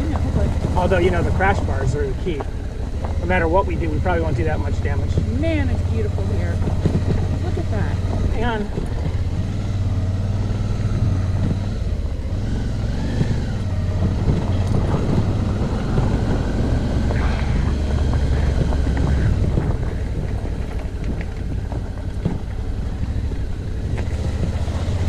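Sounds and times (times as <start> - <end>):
knocks and rattles from bumps: 0.0 - 11.8, 13.0 - 25.0
motorcycle engine running: 0.0 - 25.0.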